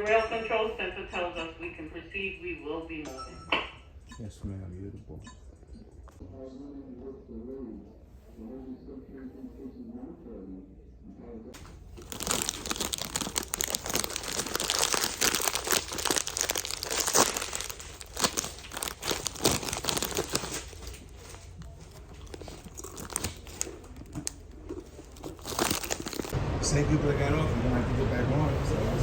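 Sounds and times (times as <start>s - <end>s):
crinkling and rustling handling: 11.6s - 26.4s.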